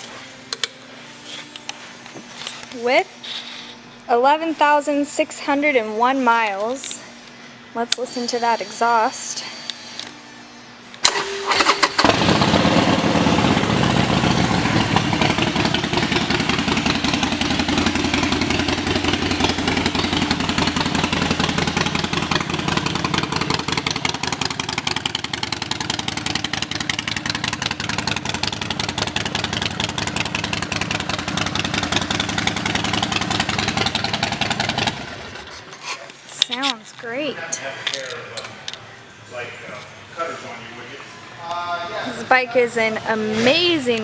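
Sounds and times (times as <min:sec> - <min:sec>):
motorcycle engine starting and idling: 0:11.0 - 0:35.7.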